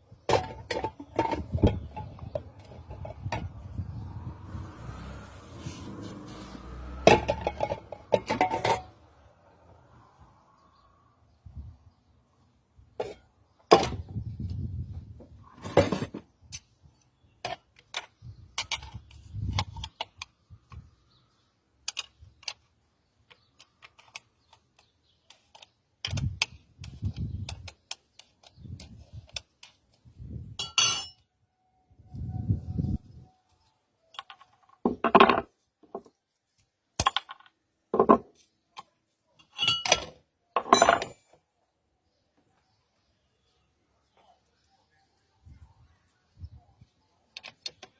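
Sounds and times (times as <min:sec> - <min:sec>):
metal clinks and knocks: 0:39.4 - 0:41.4.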